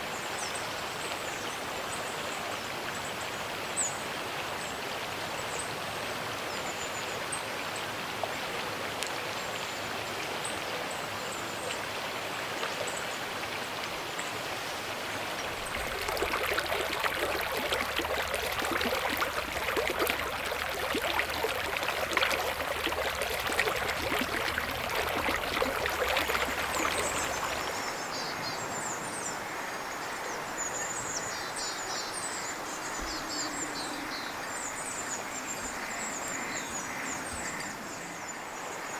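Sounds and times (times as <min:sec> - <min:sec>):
river babbling over stones: 0:13.6 - 0:28.2
small birds chirping: 0:15.6 - 0:28.6.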